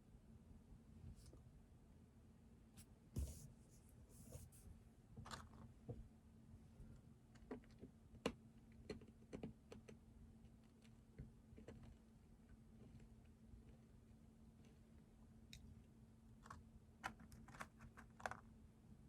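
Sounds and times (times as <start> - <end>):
soft taps and rustles: 3.2 - 3.5.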